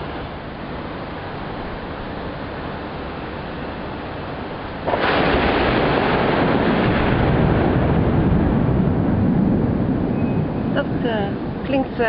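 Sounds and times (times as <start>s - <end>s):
thunder rumbling: 4.3s - 12.0s.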